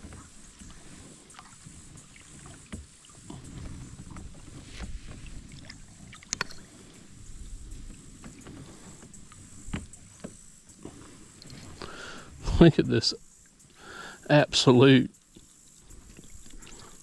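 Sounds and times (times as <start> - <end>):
water against kayak hull: 0.0 - 14.2, 15.2 - 17.0
small knocks and clicks: 4.1 - 6.8.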